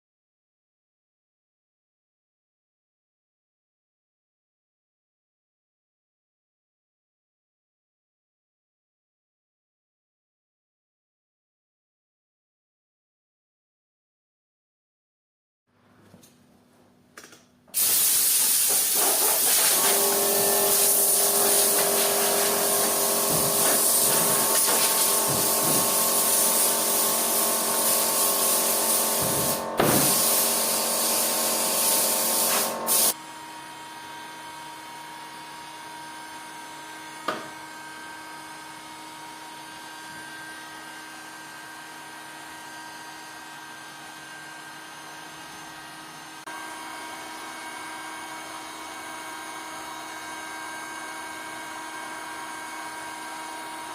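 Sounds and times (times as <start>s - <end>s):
power tool motor whine: 18.1s - 53.9s.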